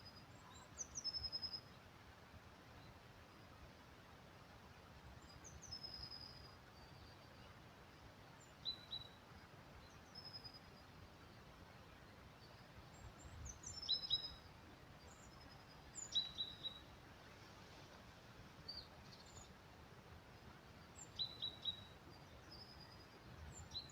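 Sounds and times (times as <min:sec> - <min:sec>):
small birds chirping: 0:00.0 - 0:01.8, 0:05.2 - 0:17.1, 0:18.5 - 0:23.9
faint forest hiss: 0:00.0 - 0:23.9.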